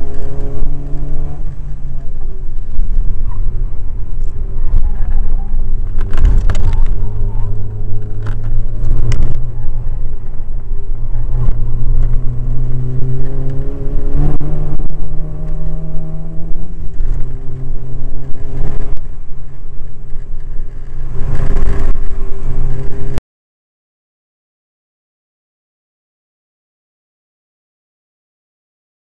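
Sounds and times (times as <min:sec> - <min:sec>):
car engine revving hard: 0:00.0 - 0:02.1, 0:11.0 - 0:19.0
wind rumble on microphone: 0:00.0 - 0:23.2.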